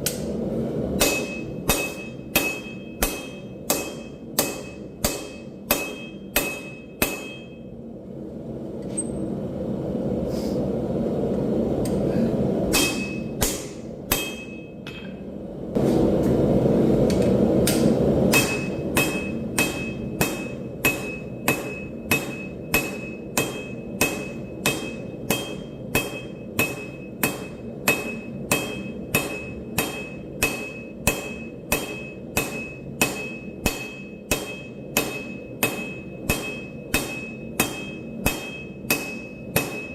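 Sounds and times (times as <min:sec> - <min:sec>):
hammer ringing on anvil: 0:01.0 - 0:07.7, 0:12.7 - 0:15.2, 0:18.3 - 0:39.9.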